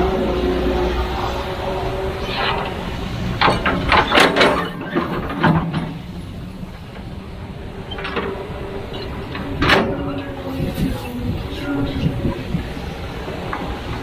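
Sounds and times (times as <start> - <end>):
excavator diesel engine humming: 0.0 - 14.0
sharp metal clanks and knocks: 3.4 - 6.1.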